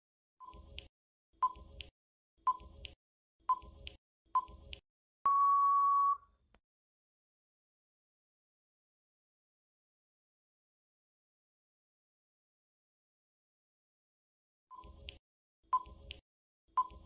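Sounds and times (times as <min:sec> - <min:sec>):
electronic timer beeps: 0:00.4 - 0:06.3, 0:14.7 - 0:17.0.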